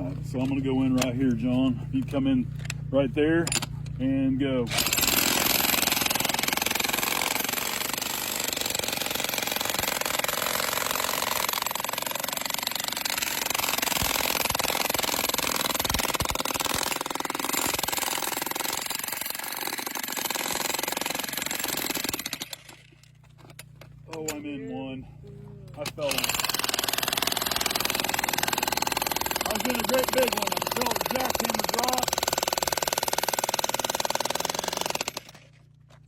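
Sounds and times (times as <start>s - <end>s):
jackhammer breaking rock: 4.7s - 23.1s, 25.8s - 35.7s.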